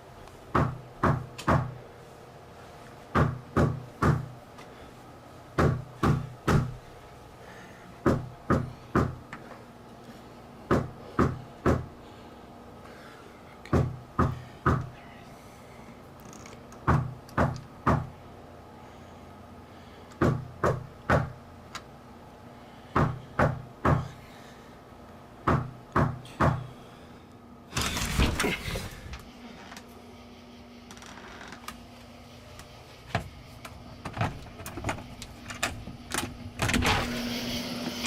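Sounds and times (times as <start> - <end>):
knocking on door: 0.5 - 1.8, 3.2 - 4.3, 10.7 - 11.9, 16.9 - 18.1.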